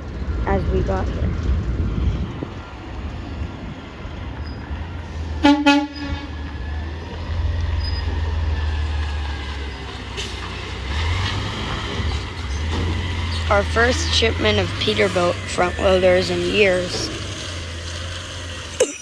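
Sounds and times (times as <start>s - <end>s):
low engine rumble: 0.0s - 18.8s
vehicle horn blasts: 5.4s - 6.4s.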